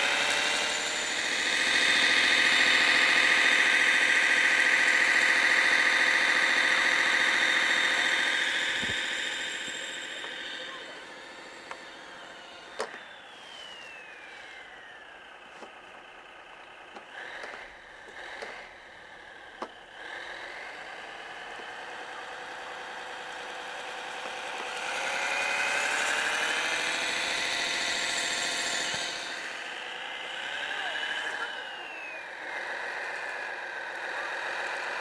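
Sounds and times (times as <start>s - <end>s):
simulated diesel engine from speaker: 0.0s - 35.0s.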